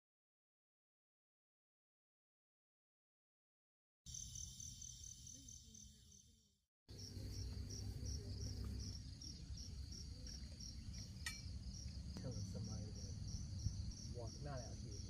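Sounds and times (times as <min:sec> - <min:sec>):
cricket chirping: 0:04.1 - 0:15.0.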